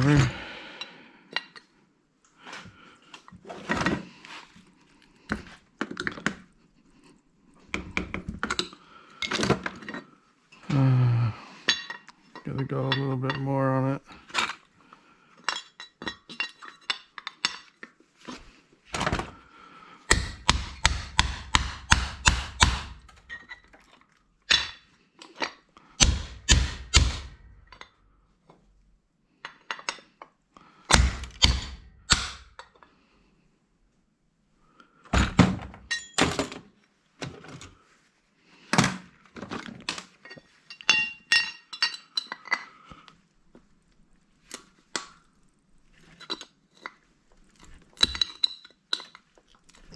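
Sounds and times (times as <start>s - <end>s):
hammer striking metal punch: 20.1s - 23.0s, 26.0s - 27.4s, 30.9s - 32.5s
light metallic clinks and taps: 40.2s - 42.7s.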